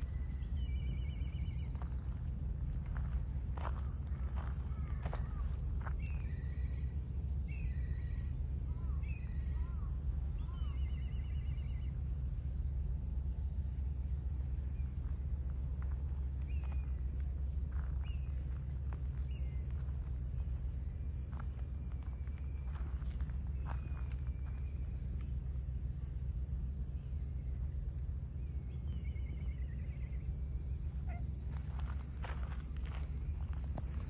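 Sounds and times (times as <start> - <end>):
insect drone: 0.0 - 34.0.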